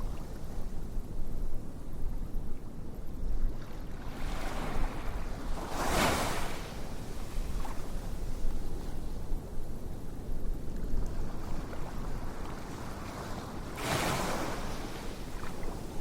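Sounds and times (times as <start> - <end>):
surf-like rushing noise: 4.2 - 7.8, 12.4 - 16.0.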